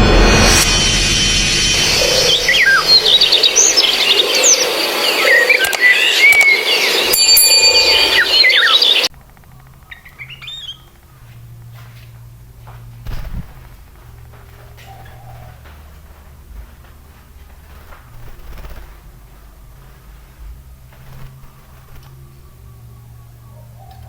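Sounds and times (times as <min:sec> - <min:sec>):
loud noisy background: 0:00.0 - 0:10.3
bird chirping and whistling: 0:01.6 - 0:09.1, 0:09.9 - 0:10.9.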